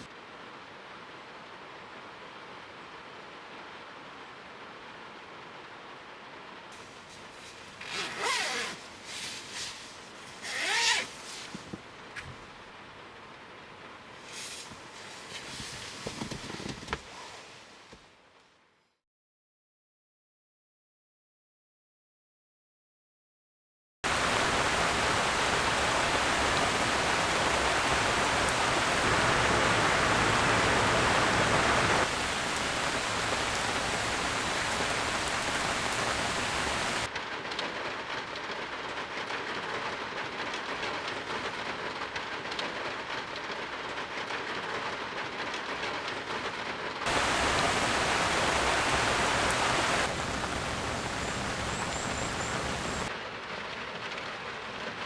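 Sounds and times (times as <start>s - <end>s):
heavy rain pouring: 24.0s - 37.1s, 47.1s - 53.1s.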